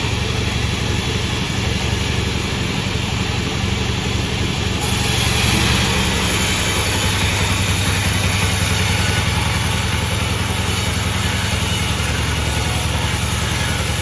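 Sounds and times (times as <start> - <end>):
sawmill engine running: 0.0 - 14.0
high hiss: 4.8 - 14.0.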